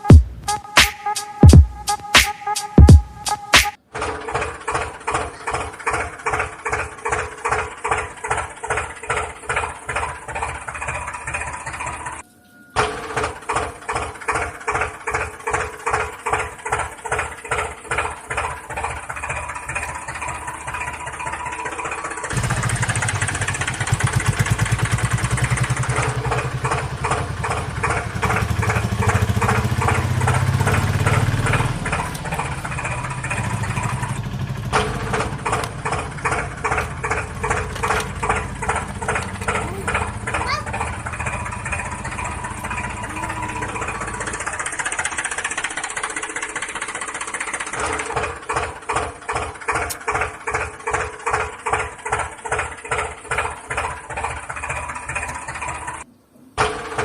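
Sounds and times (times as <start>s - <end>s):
tractor engine chugging at idle: 0.0s - 12.2s, 12.8s - 57.0s
deeper louder engine running: 2.8s - 12.2s, 12.8s - 57.0s.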